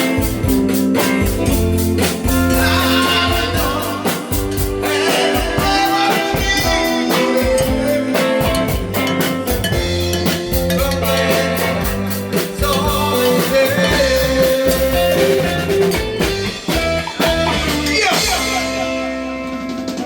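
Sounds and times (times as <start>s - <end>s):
rock band music: 0.0s - 20.0s.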